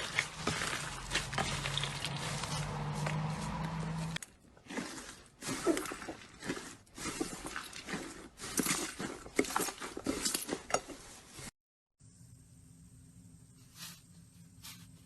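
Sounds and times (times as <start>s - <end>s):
slime squelching and crackling: 0.0s - 11.2s.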